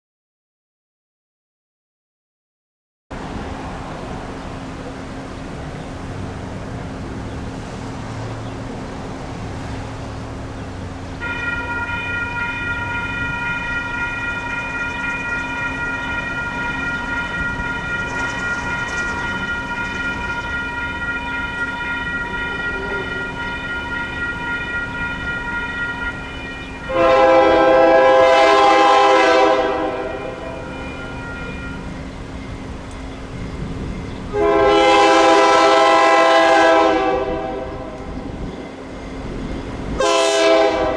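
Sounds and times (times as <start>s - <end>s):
train horn blasts: 9.6s - 40.9s.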